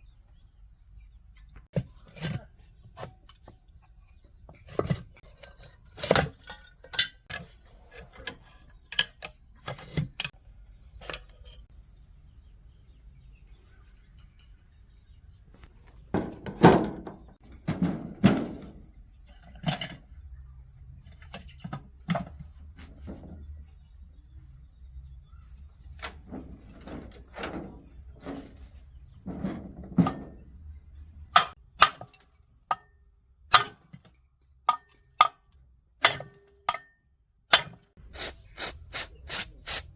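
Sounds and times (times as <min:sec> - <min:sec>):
crickets chirring: 0:00.0 - 0:39.9
heavy thuds: 0:16.1 - 0:19.1, 0:25.8 - 0:31.6
sharp knocks and clinks: 0:29.2 - 0:32.9, 0:34.7 - 0:37.8.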